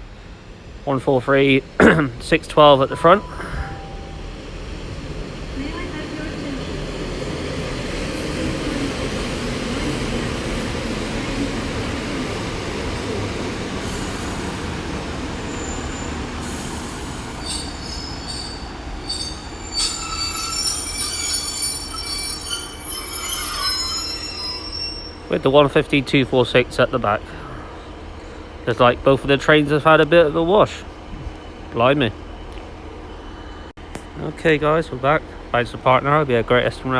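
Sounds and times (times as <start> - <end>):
train engines and wheels rumbling: 0.0 - 36.9
wheel and brake squeals: 15.4 - 25.4.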